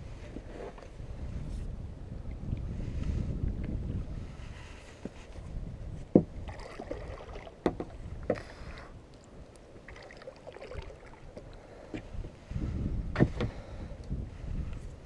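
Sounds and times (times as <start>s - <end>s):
water splashing: 6.4s - 11.7s.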